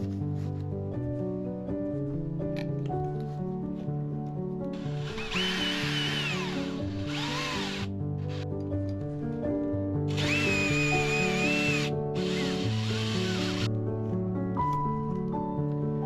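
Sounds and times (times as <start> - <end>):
background music: 0.0 - 16.0
power drill whining: 4.8 - 8.4, 10.1 - 13.7.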